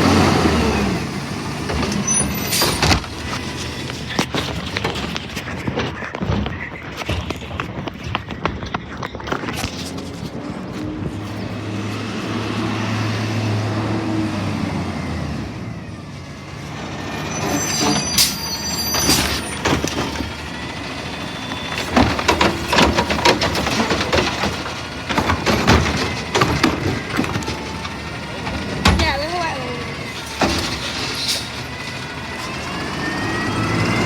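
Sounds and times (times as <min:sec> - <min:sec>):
brakes squealing and hissing: 0:00.0 - 0:15.2, 0:16.7 - 0:34.0
garbage truck engine drone: 0:00.0 - 0:34.0
metal clanks and knocks: 0:01.6 - 0:10.4, 0:17.8 - 0:20.7, 0:21.5 - 0:31.9.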